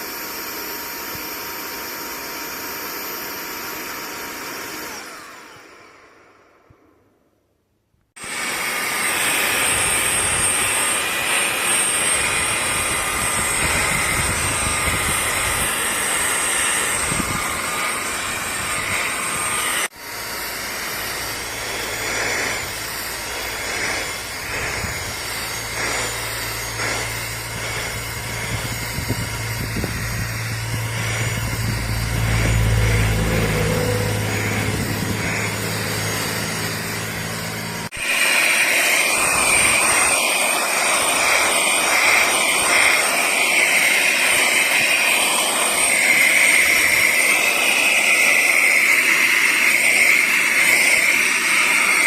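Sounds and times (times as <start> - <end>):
handheld vacuum motor whining: 0.0 - 7.2, 8.2 - 52.0
low hum: 12.1 - 37.9.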